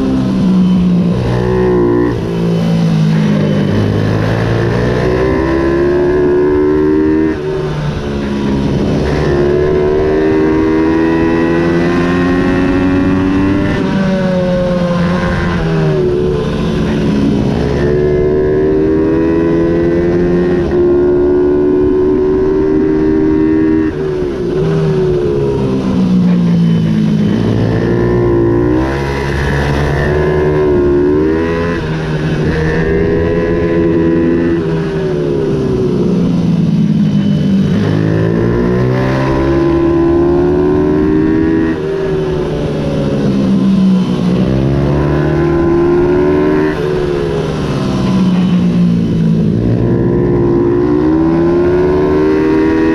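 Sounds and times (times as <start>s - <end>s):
minibike engine revving: 0.0s - 52.9s.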